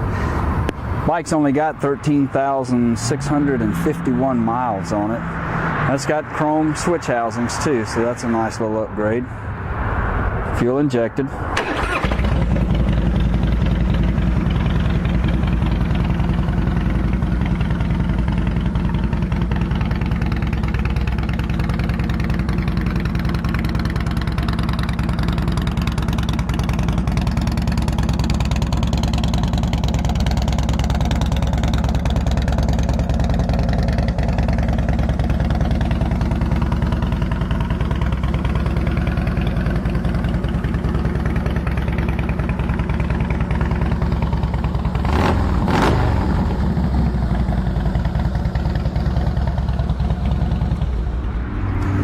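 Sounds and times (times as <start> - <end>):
motorcycle engine idling: 11.6 - 51.2.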